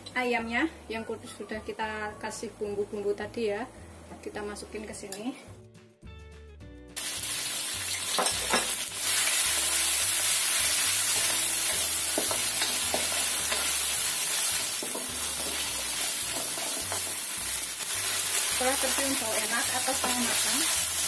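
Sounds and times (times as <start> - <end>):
chicken sizzling in hot oil: 7.0 - 21.0.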